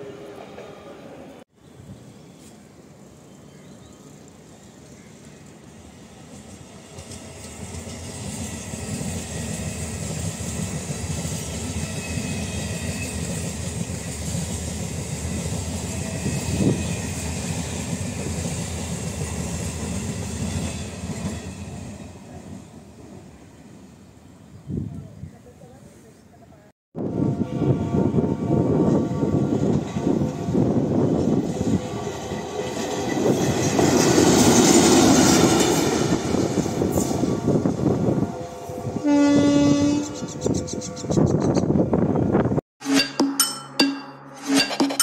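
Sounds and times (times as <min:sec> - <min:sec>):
train wheels rumbling on rails: 0:04.8 - 0:23.2, 0:27.1 - 0:42.6.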